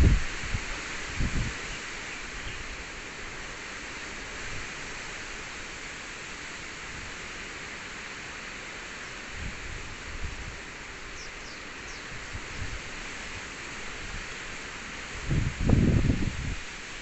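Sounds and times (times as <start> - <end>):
strong wind rushing: 0.0 - 1.6, 15.2 - 16.6
wind buffeting microphone: 0.0 - 1.7, 15.2 - 16.8.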